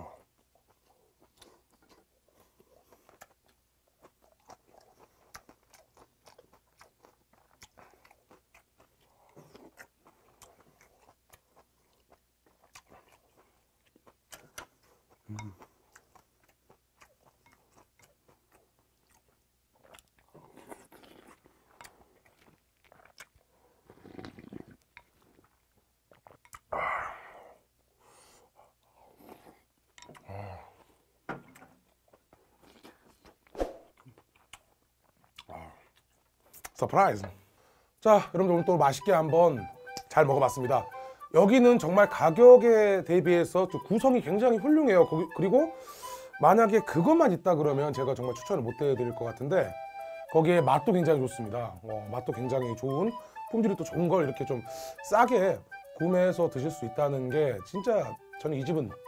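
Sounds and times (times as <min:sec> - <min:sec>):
wet chewing and mouth sounds: 0:00.1 - 0:26.7, 0:28.0 - 0:37.4, 0:38.4 - 0:59.0
breathy bursts: 0:40.9 - 0:41.3, 0:45.7 - 0:46.4, 0:54.6 - 0:55.1.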